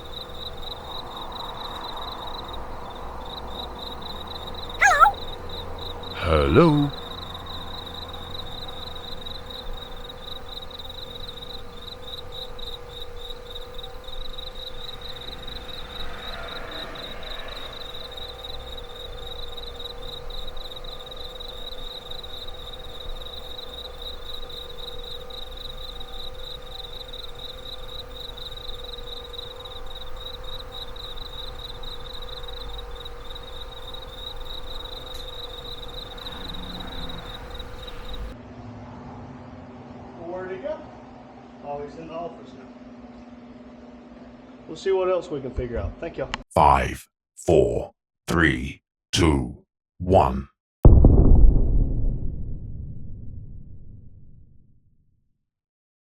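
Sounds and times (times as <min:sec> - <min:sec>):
insects trilling: 0:07.5 - 0:38.3.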